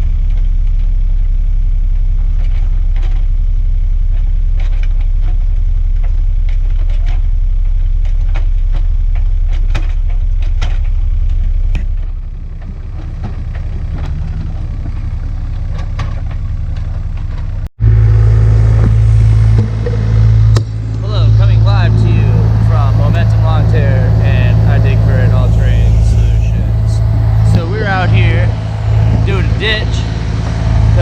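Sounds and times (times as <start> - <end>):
excavator diesel engine running: 17.8 - 31.0.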